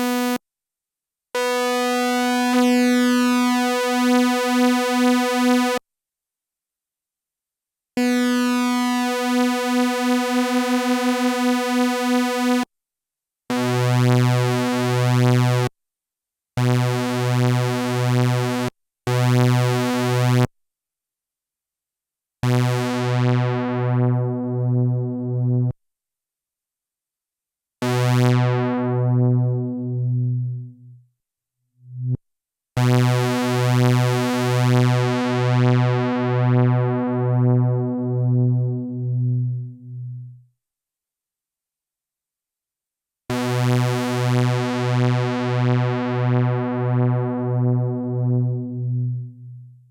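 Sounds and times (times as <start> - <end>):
pulsing low synthesizer notes: 28.2 - 31.0, 36.4 - 40.4, 45.7 - 49.9.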